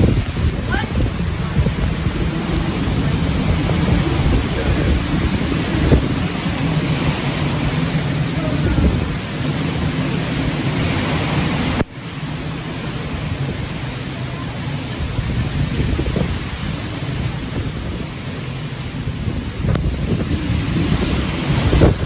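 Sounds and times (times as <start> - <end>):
hurricane wind and rain on microphone: 0.0 - 22.0.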